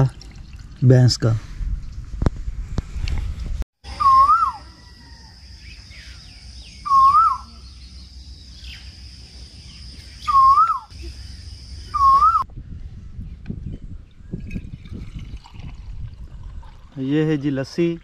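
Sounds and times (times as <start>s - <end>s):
bird whistling calls: 3.9s - 4.9s, 6.0s - 8.0s, 10.0s - 12.4s.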